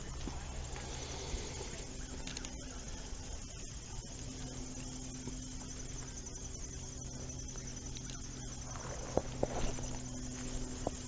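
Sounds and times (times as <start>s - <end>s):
insects trilling: 0.0s - 11.0s
low hum: 0.0s - 11.0s
small clicks: 2.2s - 2.6s.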